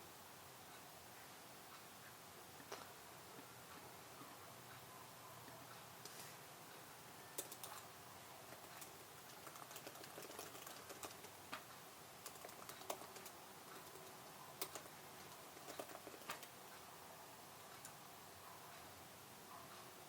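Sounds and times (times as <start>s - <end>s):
typing on computer keyboard: 7.3s - 16.6s.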